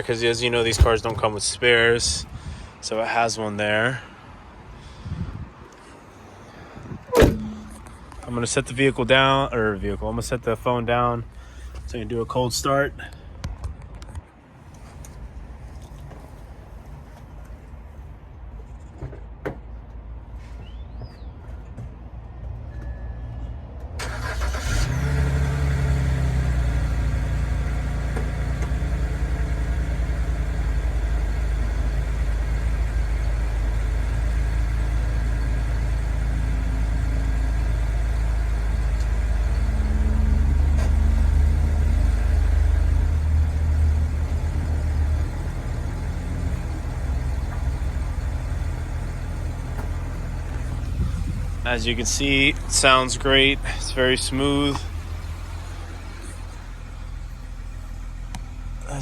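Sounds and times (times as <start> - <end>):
car engine cranking: 0.0 - 1.5, 7.1 - 8.6, 24.0 - 59.0
car engine idling: 0.0 - 2.3, 6.1 - 13.1, 24.0 - 59.0.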